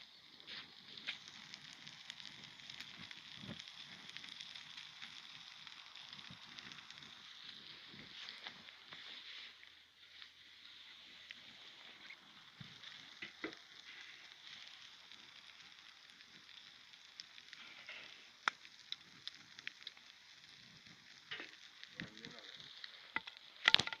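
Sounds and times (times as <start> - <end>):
fire burning in barrel: 0.0 - 24.0.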